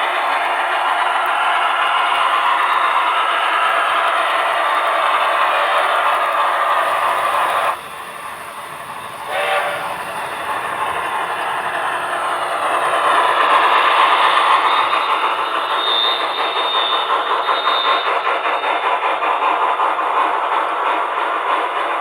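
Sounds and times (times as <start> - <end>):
steam exhaust chuffs: 0.0 - 22.0
wheels running on rails: 0.0 - 22.0
model train whistle toot: 9.1 - 12.2, 12.9 - 18.6.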